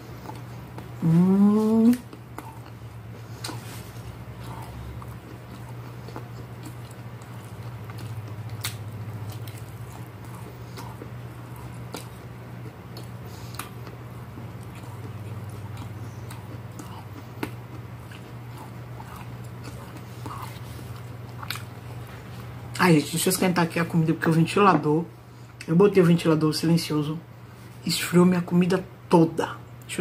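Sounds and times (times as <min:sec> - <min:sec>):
person chewing: 0:00.0 - 0:22.8
electric fan humming: 0:00.0 - 0:30.0.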